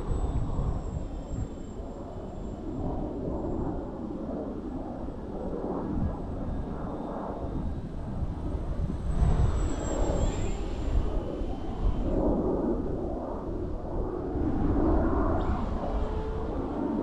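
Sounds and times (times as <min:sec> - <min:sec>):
high electric motor whine: 0:00.0 - 0:03.9, 0:06.5 - 0:17.0
rushing wind noise: 0:00.0 - 0:17.0.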